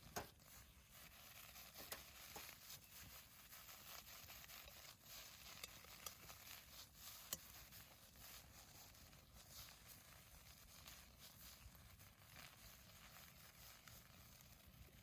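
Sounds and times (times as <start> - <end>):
campfire crackling: 4.6 - 10.8.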